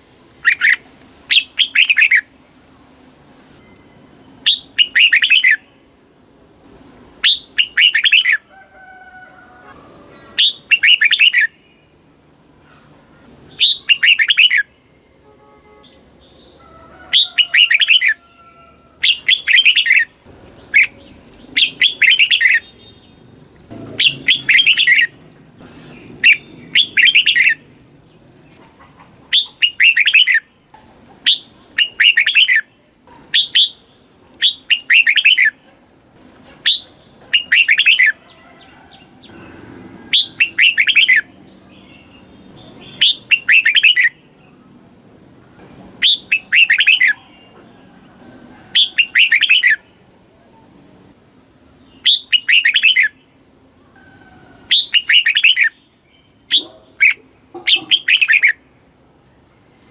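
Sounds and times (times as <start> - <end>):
bulbul warbling song: 3.7 - 5.7, 7.2 - 8.5, 12.7 - 14.7, 19.0 - 28.6, 29.2 - 30.5, 31.2 - 32.7, 34.4 - 35.6, 40.1 - 41.3, 42.8 - 44.2, 46.0 - 47.4, 48.8 - 49.8, 52.0 - 53.2, 54.7 - 58.6.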